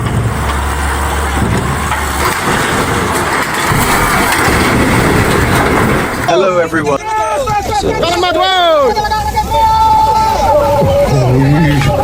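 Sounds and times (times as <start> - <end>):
heavy truck engine running: 0.0 - 7.0.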